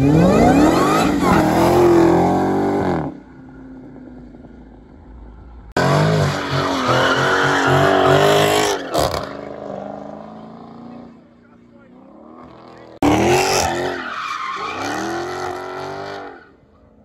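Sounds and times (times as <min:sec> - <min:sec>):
tyres squealing in a burnout: 0:00.0 - 0:02.2, 0:05.8 - 0:09.7, 0:12.4 - 0:16.7
car engine accelerating hard: 0:00.0 - 0:03.2.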